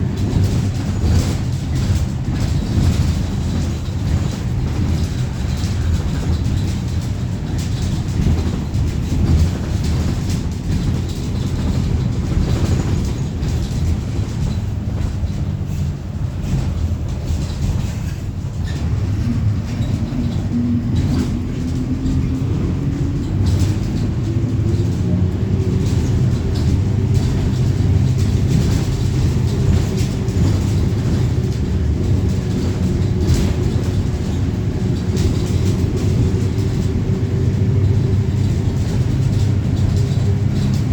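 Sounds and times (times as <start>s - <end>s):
bus body knocking and rattling: 0.0s - 40.9s
bus diesel engine rumble: 0.0s - 40.9s
rising engine whine: 18.8s - 40.9s.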